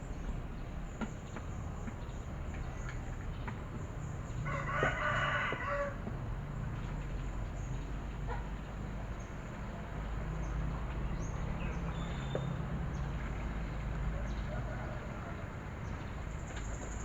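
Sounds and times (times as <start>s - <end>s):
rooster crowing: 4.4s - 6.1s.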